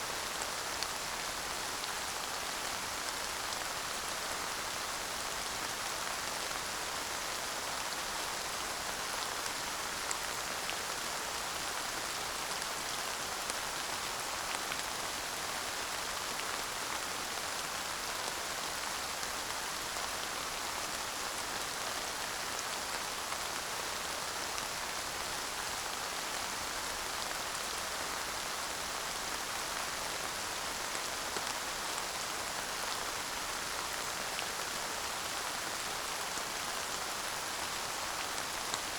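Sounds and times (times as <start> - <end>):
light rain pattering: 0.0 - 38.9.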